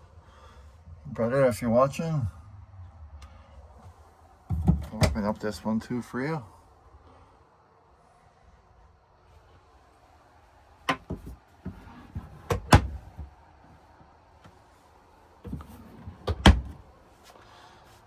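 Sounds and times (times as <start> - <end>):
compartment door clunks and knocks: 4.5 - 5.2, 10.9 - 13.3, 15.5 - 16.8.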